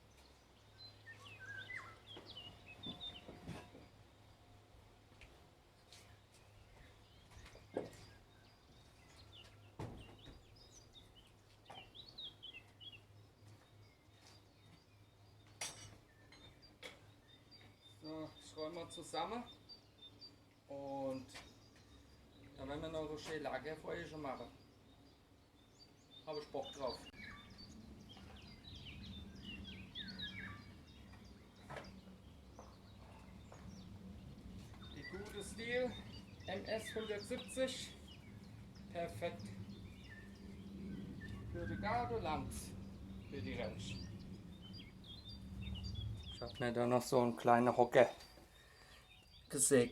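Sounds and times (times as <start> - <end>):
small birds chirping: 0.0 - 49.9
low steady hum: 21.6 - 48.8.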